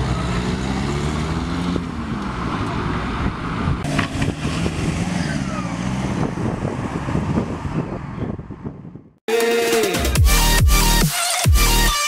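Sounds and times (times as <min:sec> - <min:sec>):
car engines revving: 0:00.0 - 0:08.9.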